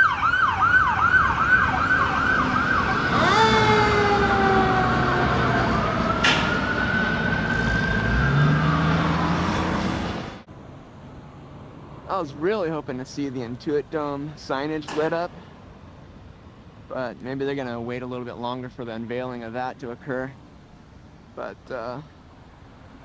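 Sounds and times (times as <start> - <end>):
emergency vehicle siren: 0.0 - 10.4.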